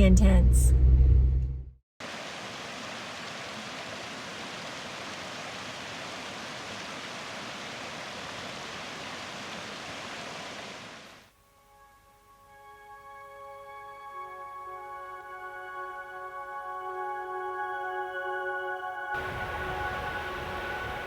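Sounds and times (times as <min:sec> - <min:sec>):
waterfall rushing: 0:02.0 - 0:11.2, 0:19.2 - 0:21.0.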